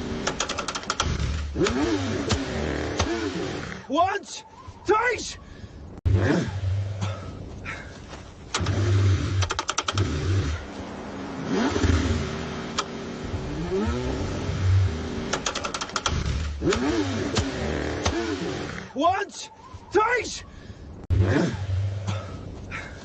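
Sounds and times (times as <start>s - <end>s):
car engine cranking: 0.0s - 3.9s, 8.4s - 10.8s, 11.4s - 19.0s
rapid clicking: 0.2s - 2.4s, 8.5s - 10.2s, 15.3s - 18.2s.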